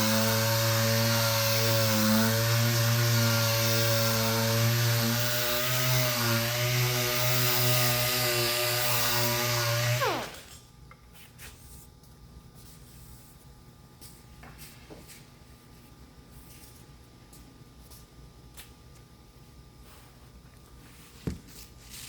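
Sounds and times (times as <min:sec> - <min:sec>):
electric sander running: 0:00.0 - 0:10.5.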